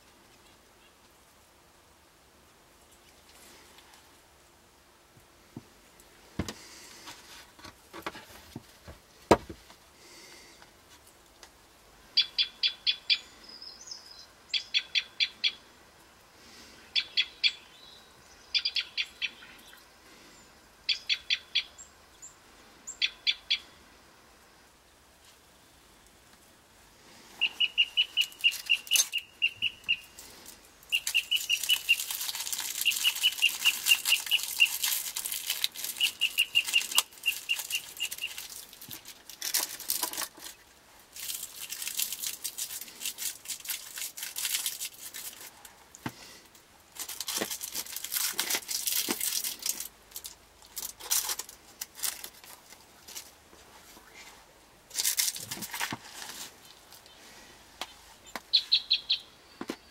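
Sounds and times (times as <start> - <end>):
dry crackling rustling noise: 2.4 - 11.9, 23.7 - 59.9
bird calling high notes: 27.4 - 30.2, 36.0 - 38.4.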